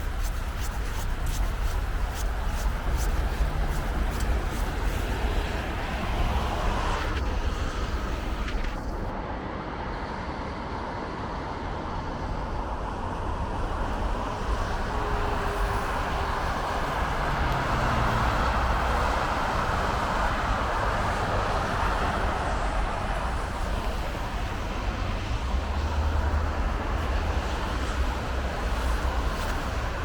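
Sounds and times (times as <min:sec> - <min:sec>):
road traffic rumble and hiss: 0:00.0 - 0:30.0
vehicle passing: 0:14.3 - 0:30.0.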